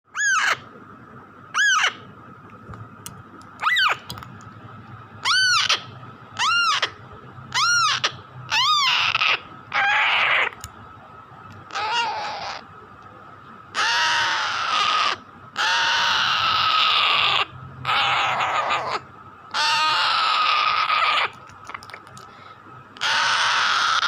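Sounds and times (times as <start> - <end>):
parakeet chick squawking: 0.1 - 0.7, 1.5 - 2.1, 3.6 - 4.1, 5.2 - 10.7, 11.7 - 12.7, 13.7 - 22.2, 23.0 - 24.0.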